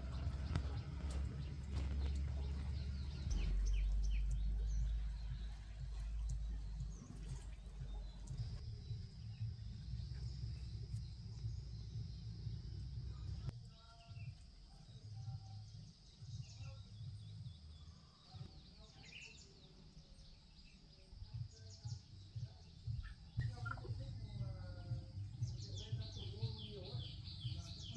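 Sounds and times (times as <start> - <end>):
low rumble: 0.0 - 18.0
birds chirping: 0.0 - 27.9.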